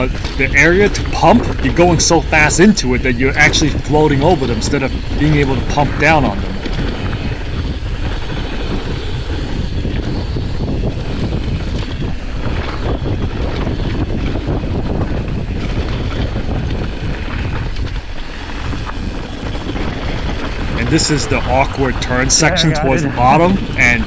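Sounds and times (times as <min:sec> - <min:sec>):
wind on microphone: 0:00.0 - 0:24.0
bike rattling over dirt trail: 0:06.2 - 0:20.9.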